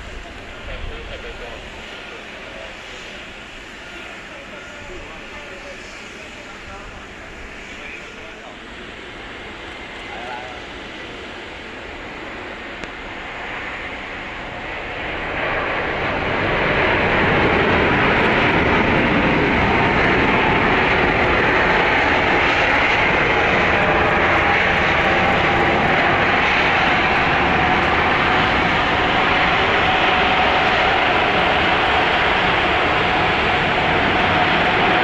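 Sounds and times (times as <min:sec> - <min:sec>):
jet engine noise: 0:00.0 - 0:35.0.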